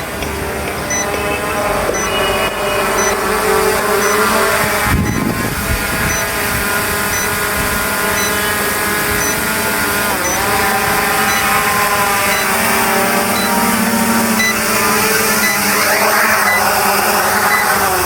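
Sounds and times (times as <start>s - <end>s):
drone propellers whining: 0.0s - 18.0s
faint high beep: 0.9s - 1.2s, 1.9s - 3.2s, 4.0s - 4.2s, 8.2s - 8.4s, 15.4s - 16.7s.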